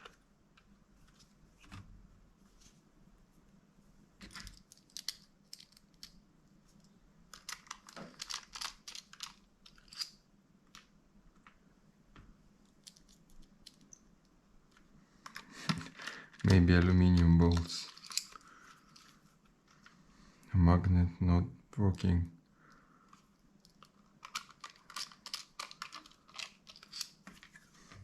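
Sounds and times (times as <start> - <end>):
hand tools and screws clicking: 17.5 - 19.1, 23.7 - 27.2.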